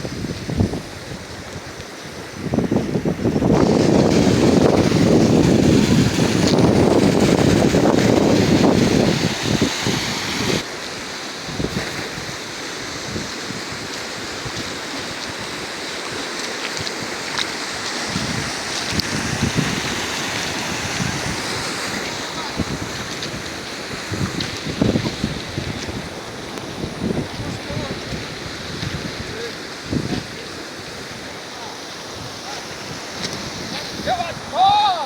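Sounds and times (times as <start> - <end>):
wind buffeting microphone: 0.0 - 10.7, 11.4 - 35.0
river water rushing: 0.1 - 35.0.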